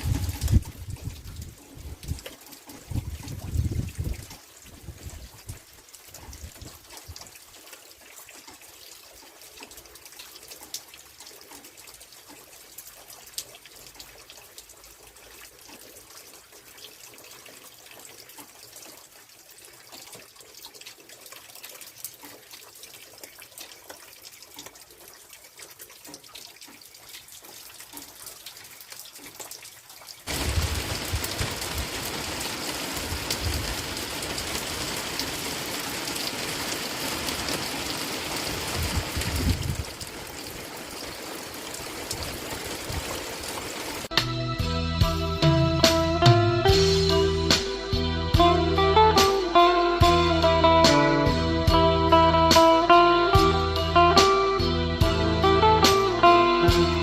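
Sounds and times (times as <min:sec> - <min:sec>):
rush of water: 0:00.0 - 0:44.1
rain water dripping and trickling: 0:00.0 - 0:44.2, 0:45.0 - 0:57.0.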